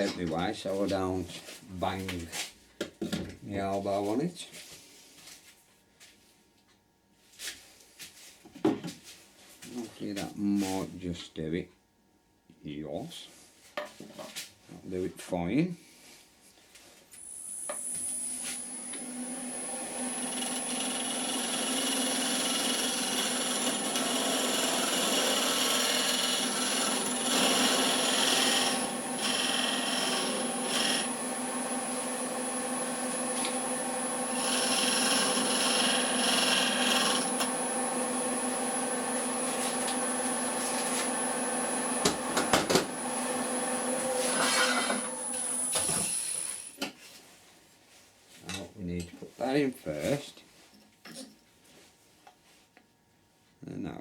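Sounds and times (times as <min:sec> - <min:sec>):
power tool sanding wood: 0:17.9 - 0:46.5.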